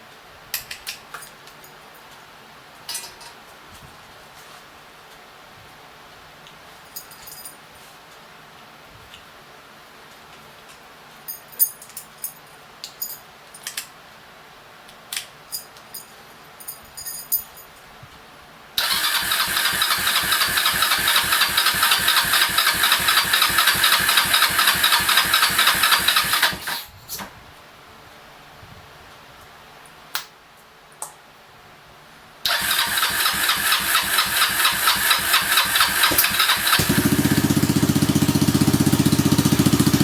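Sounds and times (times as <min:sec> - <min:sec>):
electric starter cranking engine: 0:18.8 - 0:26.9, 0:32.5 - 0:40.0.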